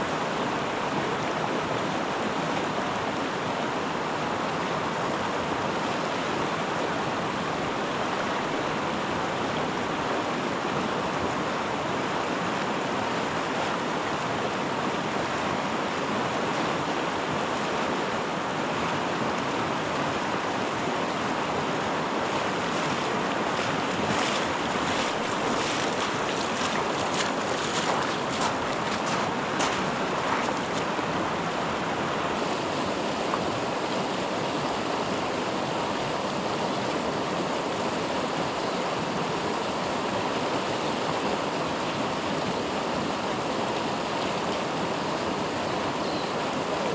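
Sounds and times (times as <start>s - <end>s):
river water rushing: 0.0s - 46.9s.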